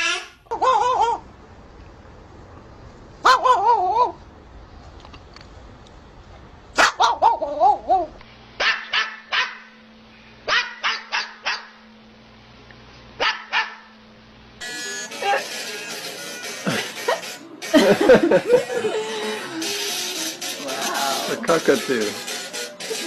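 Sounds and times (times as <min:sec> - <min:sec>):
dog barking: 0:03.2 - 0:04.2, 0:06.8 - 0:09.8, 0:10.5 - 0:11.8, 0:13.2 - 0:13.9.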